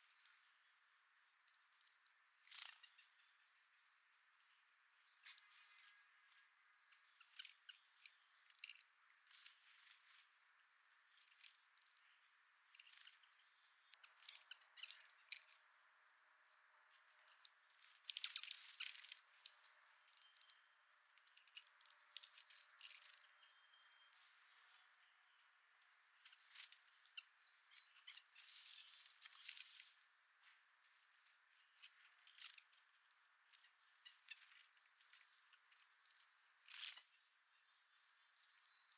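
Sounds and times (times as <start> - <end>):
birds tapping at seed feeder: 6.8 - 10.3, 10.9 - 15.7, 17.0 - 23.7
high bird chirps: 22.3 - 29.7.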